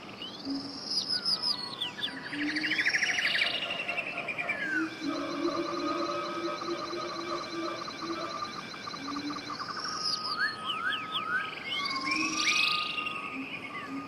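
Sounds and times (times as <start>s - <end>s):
birds singing: 0.0s - 14.0s
rising whistles: 4.6s - 14.0s
low steady tones: 4.7s - 10.8s.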